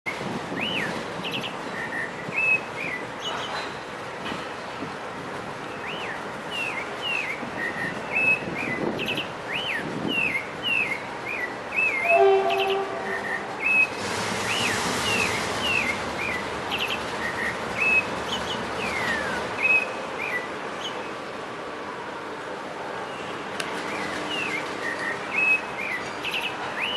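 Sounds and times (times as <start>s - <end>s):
distant train horn: 12.0s - 15.9s
rushing sound: 12.1s - 19.4s.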